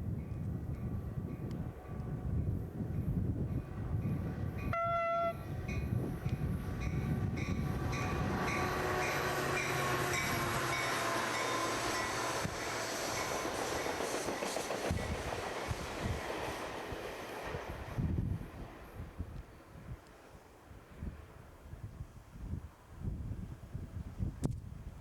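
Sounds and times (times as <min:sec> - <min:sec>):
diesel train rumbling: 0:00.1 - 0:20.0
locomotive horn blast: 0:04.6 - 0:05.7, 0:07.2 - 0:13.4.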